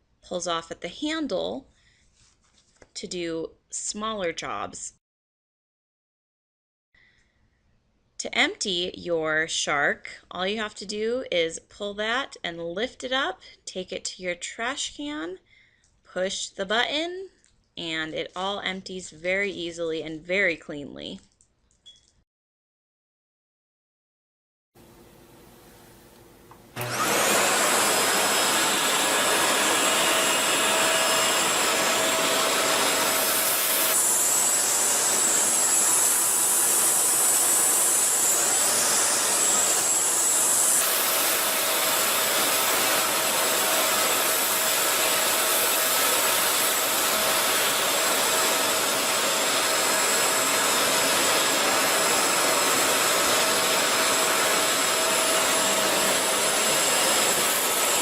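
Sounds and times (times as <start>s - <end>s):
vacuum cleaner running: 24.8s - 58.0s.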